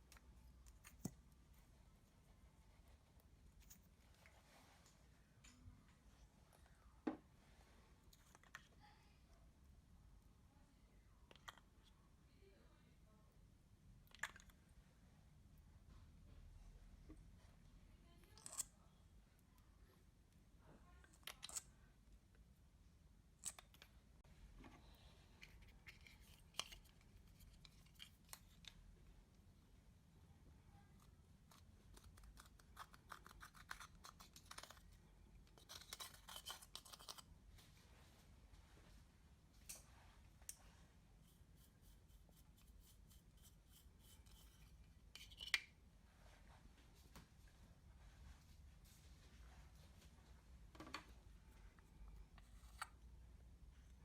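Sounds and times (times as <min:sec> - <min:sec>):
makeup scraping and ticking: 0:31.0 - 0:37.3.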